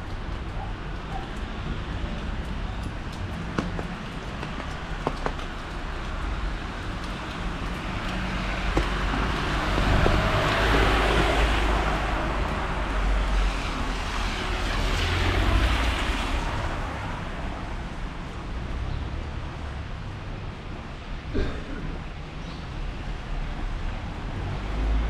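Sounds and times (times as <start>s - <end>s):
rain patter: 0.0s - 21.3s
tyres hissing on wet road: 0.4s - 18.2s.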